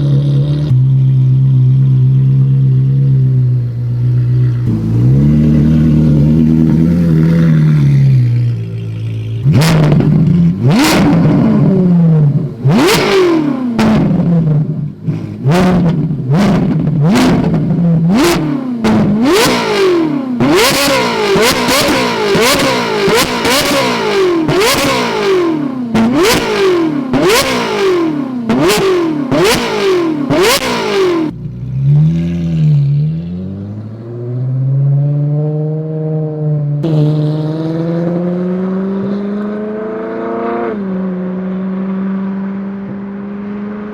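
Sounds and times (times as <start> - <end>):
car engine idling: 0.0 - 31.9
exhaust cracks: 0.0 - 32.9
car engine revving: 0.0 - 43.9.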